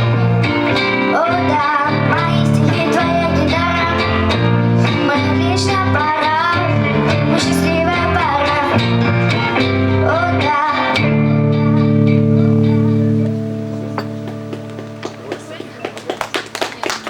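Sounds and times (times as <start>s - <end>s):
strummed guitar: 0.0s - 16.0s
young female voice singing: 1.0s - 13.2s.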